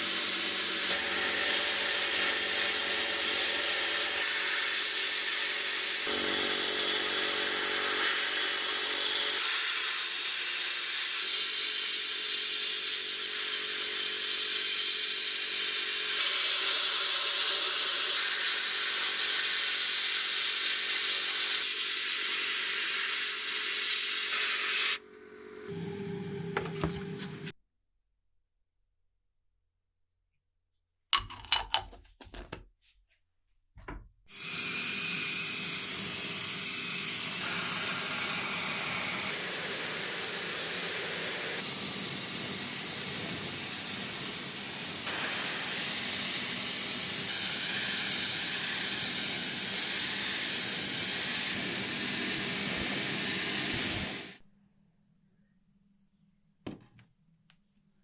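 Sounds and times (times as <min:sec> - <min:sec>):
loud spray hiss: 0:34.3 - 0:54.4
knock: 0:56.6 - 0:57.1.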